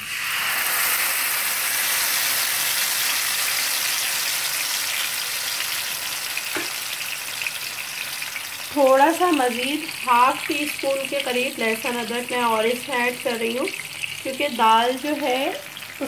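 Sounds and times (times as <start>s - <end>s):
paste sizzling in hot oil: 0.0s - 16.0s.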